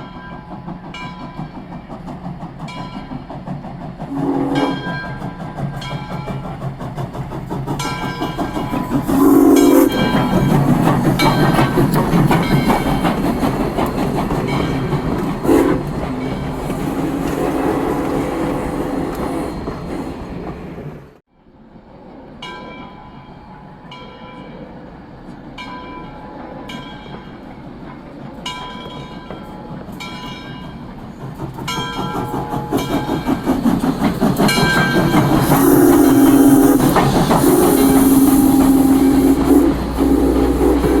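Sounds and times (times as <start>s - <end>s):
train rumbling past: 0.0s - 41.0s
railroad bell ringing: 4.5s - 6.4s, 7.8s - 15.3s.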